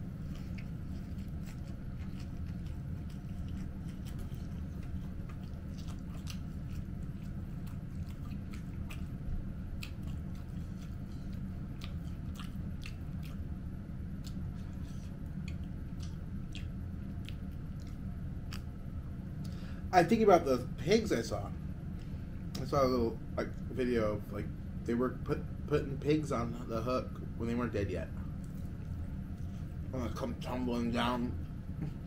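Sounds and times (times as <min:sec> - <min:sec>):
person chewing food: 0:00.0 - 0:19.6
low hum: 0:00.0 - 0:32.0.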